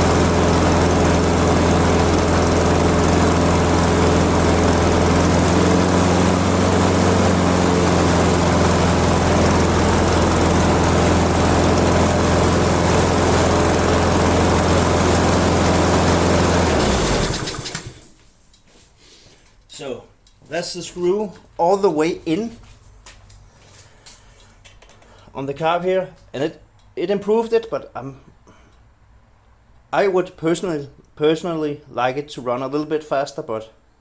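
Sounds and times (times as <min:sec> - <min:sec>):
engine running down to a stop: 0:00.0 - 0:18.1
lawn mower engine running: 0:00.0 - 0:18.1.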